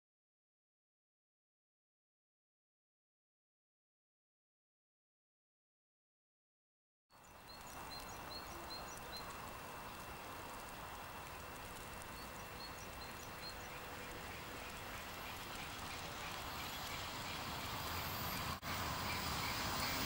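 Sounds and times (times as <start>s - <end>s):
steady background hiss: 7.2s - 20.0s.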